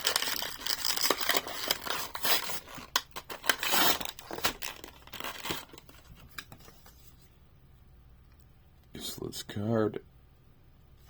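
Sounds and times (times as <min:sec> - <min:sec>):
cardboard tearing: 0:00.0 - 0:05.9
plastic packaging crinkling: 0:00.0 - 0:06.7.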